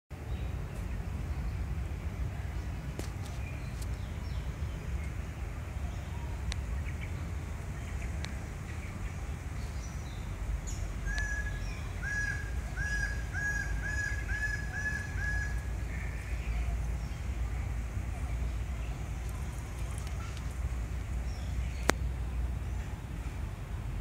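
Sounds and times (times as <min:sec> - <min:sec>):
low outdoor rumble: 0:00.1 - 0:24.0.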